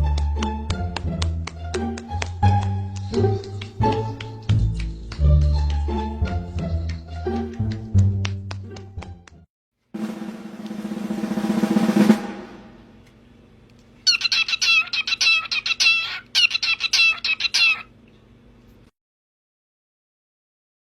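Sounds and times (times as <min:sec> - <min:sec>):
drum roll: 0:10.0 - 0:13.0
bird chattering clucks: 0:14.1 - 0:17.9.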